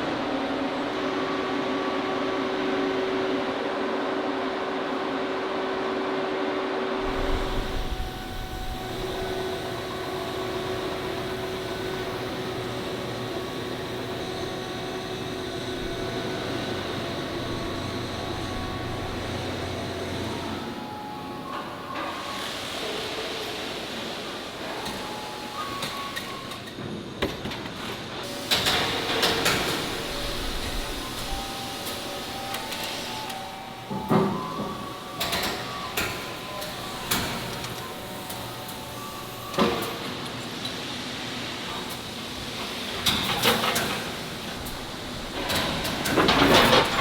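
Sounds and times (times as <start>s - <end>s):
factory machinery drone: 0.0s - 47.0s
machine hum: 7.0s - 22.1s
faint steady tones: 7.0s - 22.9s, 28.5s - 40.8s.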